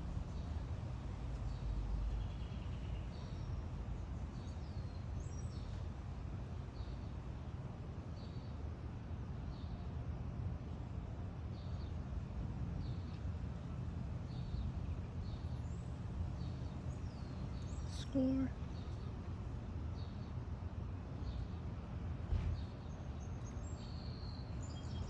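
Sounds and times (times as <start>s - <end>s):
low outdoor rumble: 0.0s - 25.0s
small birds chirping: 1.3s - 5.8s, 14.3s - 20.5s, 21.2s - 21.7s, 22.5s - 25.0s.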